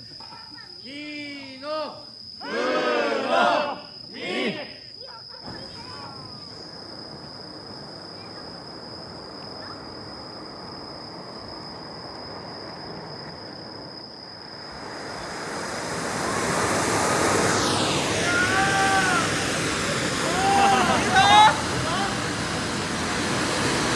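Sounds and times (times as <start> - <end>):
background hiss: 0.0 - 23.9
high insect trill: 0.0 - 23.9
firework fountain spraying sparks: 5.4 - 23.9.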